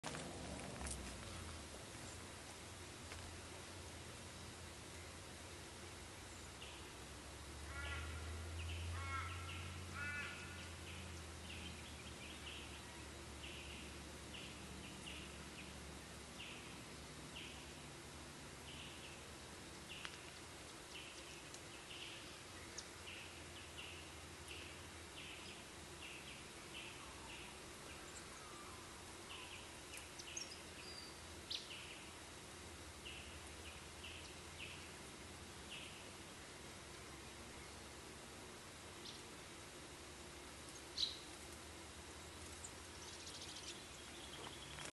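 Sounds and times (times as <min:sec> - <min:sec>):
lower repeated bird notes: 0:04.3 - 0:17.9, 0:18.6 - 0:38.1.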